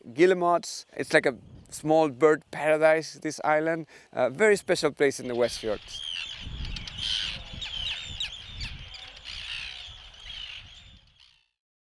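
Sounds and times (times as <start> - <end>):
seabirds calling: 4.6 - 11.6.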